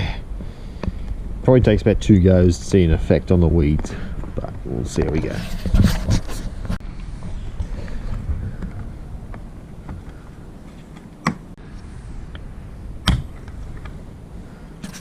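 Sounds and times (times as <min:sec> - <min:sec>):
wind buffeting microphone: 0:00.9 - 0:10.6.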